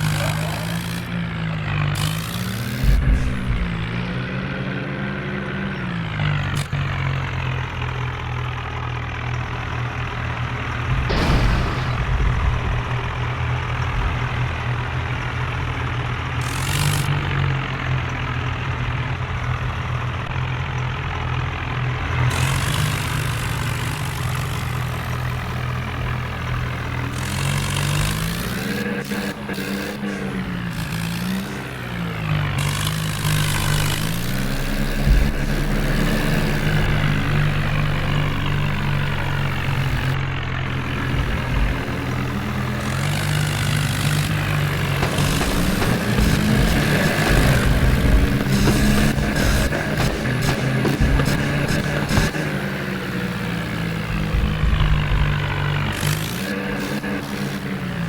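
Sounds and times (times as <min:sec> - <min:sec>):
tractor engine revving: 0:00.0 - 0:58.0
bursts of noise: 0:02.0 - 0:05.3, 0:10.8 - 0:17.2, 0:24.7 - 0:57.9.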